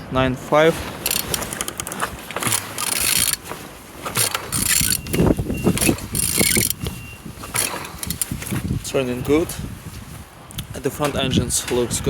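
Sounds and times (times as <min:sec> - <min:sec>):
engine clicking and grinding: 0:00.8 - 0:08.7.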